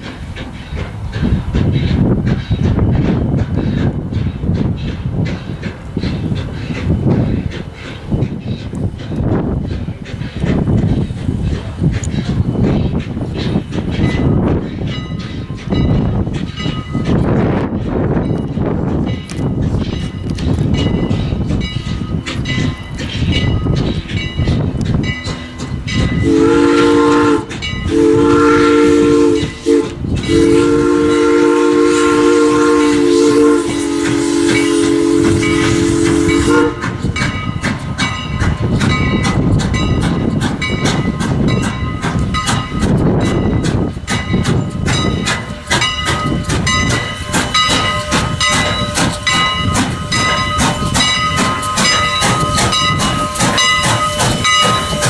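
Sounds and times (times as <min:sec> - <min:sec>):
passing train rumbling: 0:00.0 - 0:55.0
train wheels clattering over rail joints: 0:00.0 - 0:55.0
steam locomotive whistle: 0:25.2 - 0:37.4, 0:44.8 - 0:55.0.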